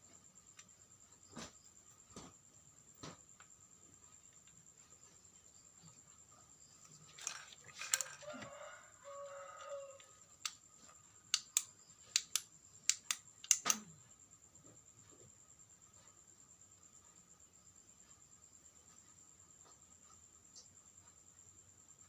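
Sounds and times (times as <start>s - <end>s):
sharp clicks: 11.3s - 13.9s.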